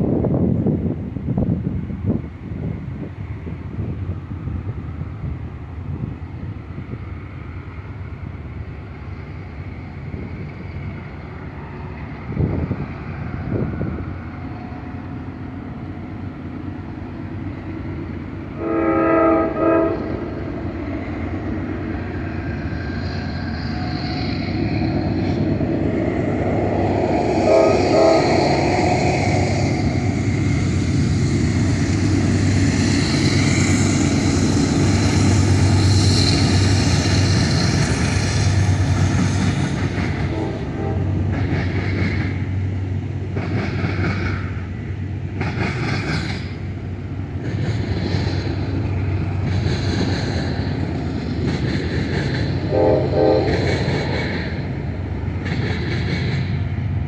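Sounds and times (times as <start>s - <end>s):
locomotive engine rumble: 0.0s - 57.0s
train horn blasts: 18.6s - 20.5s, 27.3s - 29.7s, 40.2s - 41.4s, 52.6s - 54.2s.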